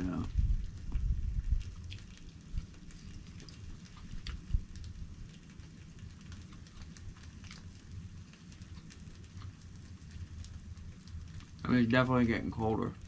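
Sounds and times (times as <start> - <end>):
light ticks and crackles: 0.0 - 13.0
wind rumbling on microphone: 0.0 - 13.0.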